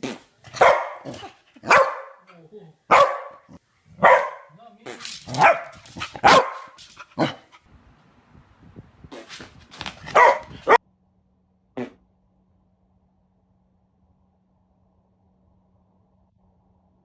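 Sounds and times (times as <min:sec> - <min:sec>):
dog barking: 0:00.4 - 0:02.3, 0:02.9 - 0:04.6, 0:05.3 - 0:07.6, 0:10.0 - 0:10.8.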